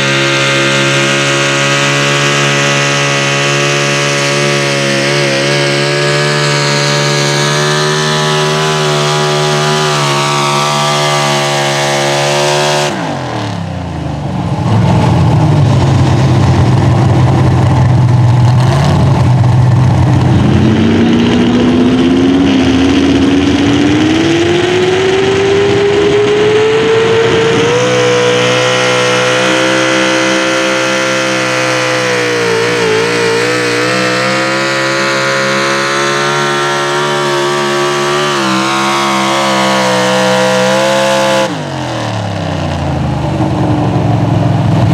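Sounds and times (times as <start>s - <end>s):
unmuffled truck engine revving: 0.0s - 44.9s.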